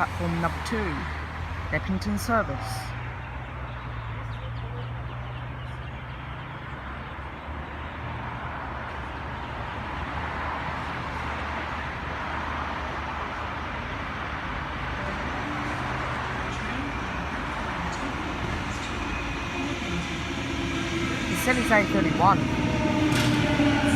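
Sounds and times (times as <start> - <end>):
electric train rolling rumble: 8.3 - 23.9.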